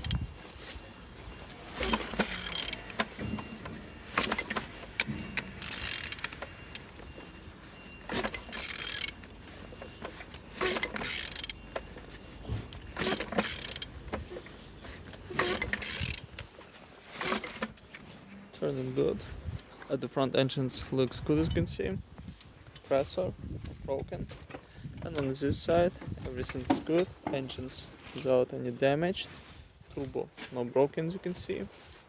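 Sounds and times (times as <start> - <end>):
ratchet wrench clicking: 0.0 - 0.2, 1.8 - 3.0, 4.2 - 6.8, 8.1 - 9.2, 10.6 - 11.6, 13.0 - 13.9, 15.4 - 16.3.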